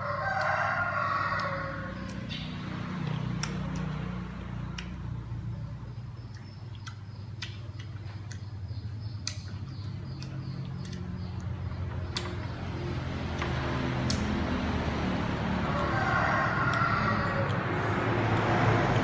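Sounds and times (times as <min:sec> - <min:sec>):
crunchy fruit being chewed: 0:06.2 - 0:15.2.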